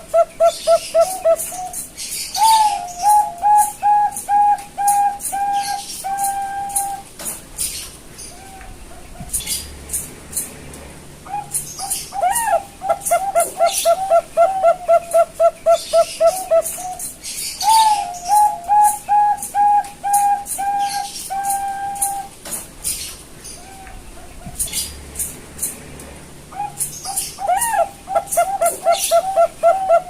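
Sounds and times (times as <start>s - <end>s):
dove cooing: 0.0s - 7.1s, 11.2s - 22.4s, 26.5s - 30.0s.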